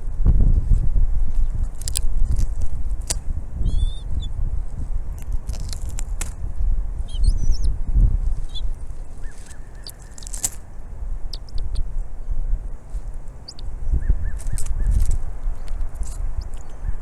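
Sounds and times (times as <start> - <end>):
wind rumble on microphone: 0.0 - 17.0
thin high bird calls: 3.0 - 4.4, 7.0 - 17.0
birds chirping: 3.6 - 4.4, 6.9 - 17.0.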